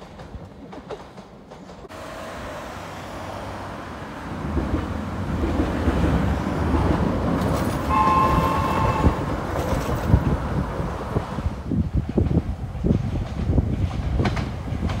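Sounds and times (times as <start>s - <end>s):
train rumbling over bridge: 0.0s - 15.0s
high steady tone: 7.9s - 9.3s.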